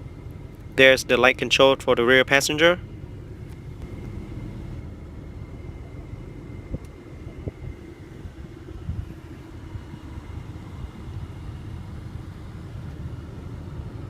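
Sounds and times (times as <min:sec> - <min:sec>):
vehicle rumble inside car cabin: 0:00.0 - 0:14.0.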